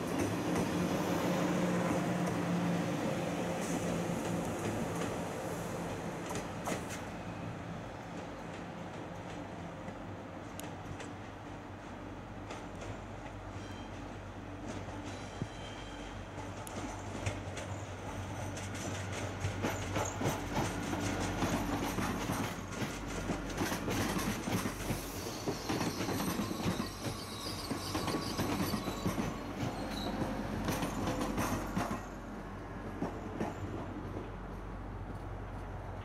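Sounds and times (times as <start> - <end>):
train wheels clattering: 12.4 - 32.2
wheel squeals: 15.1 - 16.2, 24.9 - 31.6.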